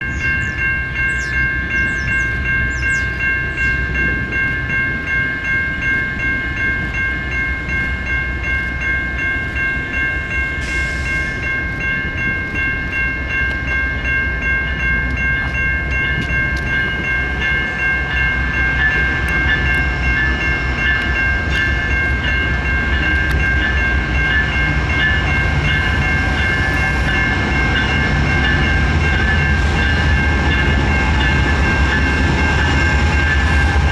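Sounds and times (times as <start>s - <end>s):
high ringing tones: 0.0s - 33.9s
train wheels on rails: 0.0s - 33.9s.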